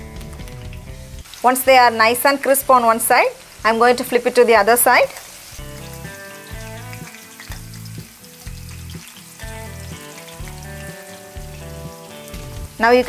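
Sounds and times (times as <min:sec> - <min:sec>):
background music with bass line: 0:00.0 - 0:01.2, 0:05.6 - 0:13.0
prawns sizzling in hot oil: 0:00.0 - 0:13.0.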